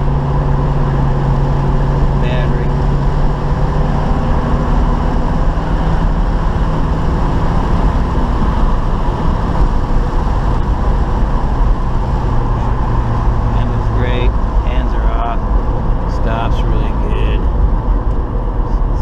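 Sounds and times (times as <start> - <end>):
car engine running: 0.0 - 19.0
road and wind noise: 0.0 - 19.0.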